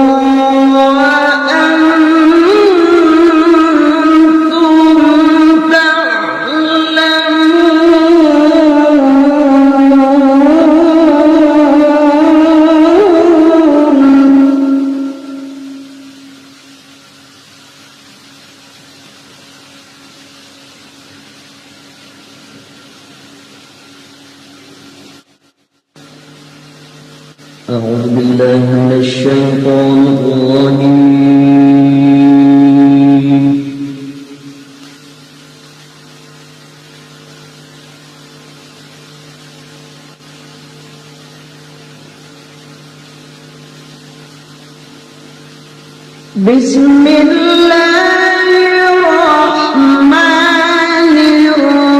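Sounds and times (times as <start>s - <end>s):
steady background hiss: 0.0s - 51.9s
steady low hum: 0.0s - 51.9s.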